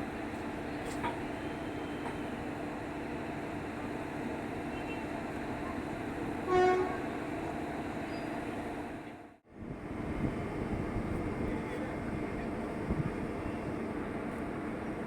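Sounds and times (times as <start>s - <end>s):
rail yard hum: 0.0s - 15.0s
train horn blast: 6.4s - 7.1s.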